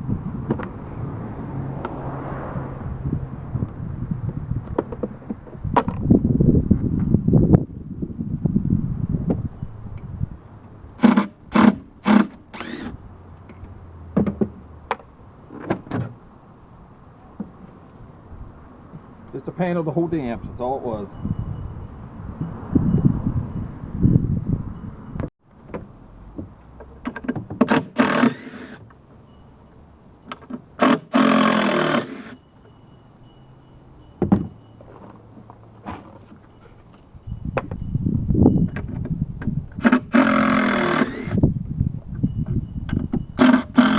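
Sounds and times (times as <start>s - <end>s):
power drill running: 11.0s - 12.9s, 27.9s - 28.8s, 30.8s - 32.4s, 40.1s - 41.4s, 43.4s - 43.9s
ringing scrape: 35.8s - 38.7s.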